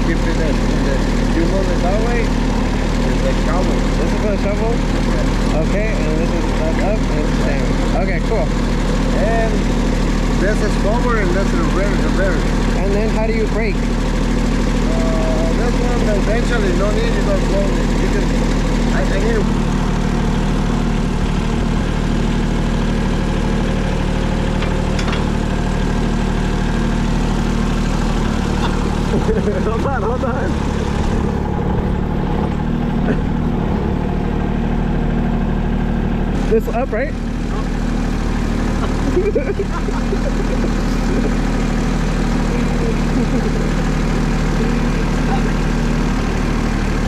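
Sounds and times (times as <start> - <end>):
tractor engine idling: 0.0 - 47.0.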